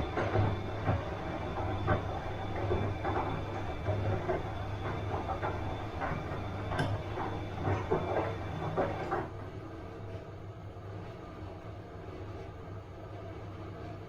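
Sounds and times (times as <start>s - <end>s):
washing machine drum swishing: 0.0s - 10.1s
washing machine motor hum: 0.0s - 14.0s
washing machine click: 6.6s - 8.2s.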